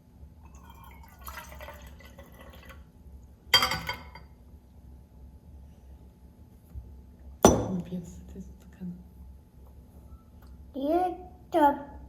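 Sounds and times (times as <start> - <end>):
glass clinking: 3.6 - 4.3, 7.4 - 7.8.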